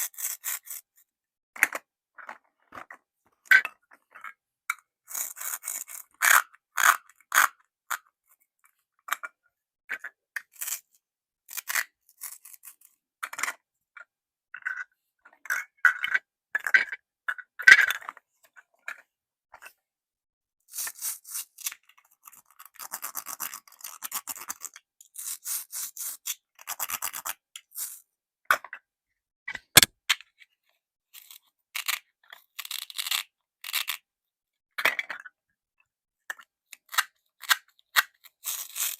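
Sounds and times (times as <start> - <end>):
plastic toys clicking and scraping: 31.2 - 34.0, 36.3 - 38.9.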